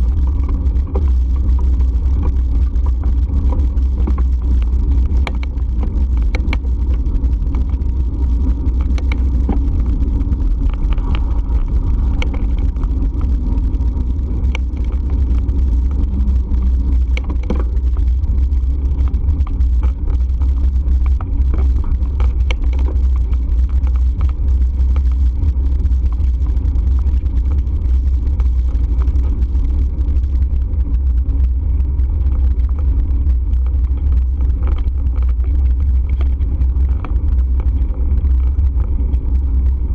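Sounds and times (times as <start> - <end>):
wind and road noise: 0.0 - 39.9
light clicks and rattles: 0.1 - 31.5.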